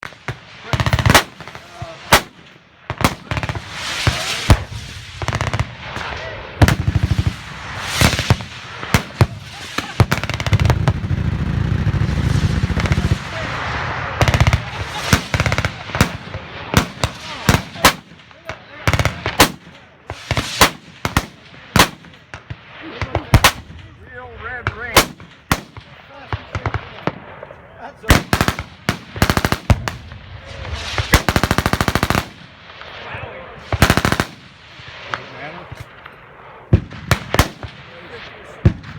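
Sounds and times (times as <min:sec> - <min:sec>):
rapid bursts of sharp bangs: 0:00.0 - 0:38.9
automatic gunfire bursts: 0:28.1 - 0:30.0, 0:31.1 - 0:32.4, 0:33.8 - 0:34.4.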